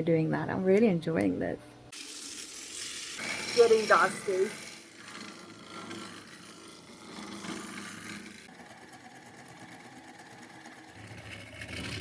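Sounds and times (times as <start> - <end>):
wood lathe running: 3.2 - 12.0.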